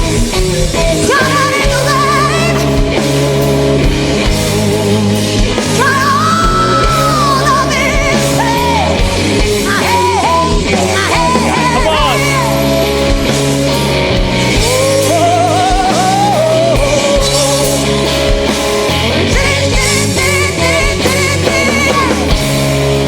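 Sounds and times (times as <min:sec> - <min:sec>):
live blues-rock band: 0:00.0 - 0:23.0
sustained bass notes: 0:00.0 - 0:23.0
woman singing: 0:00.7 - 0:03.1, 0:05.1 - 0:12.9, 0:14.5 - 0:17.9, 0:19.2 - 0:22.6.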